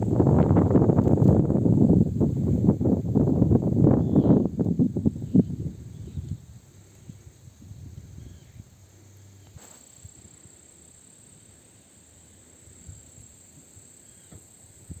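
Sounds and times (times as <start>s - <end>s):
wind gusting against microphone: 0.0s - 8.8s, 14.8s - 15.0s
steady high hiss: 0.0s - 15.0s.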